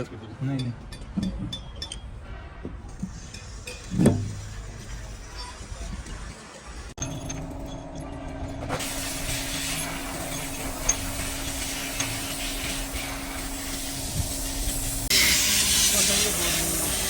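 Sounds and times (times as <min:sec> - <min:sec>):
motor hum: 0:07.0 - 0:15.2
pressurised jet hissing: 0:08.8 - 0:17.0.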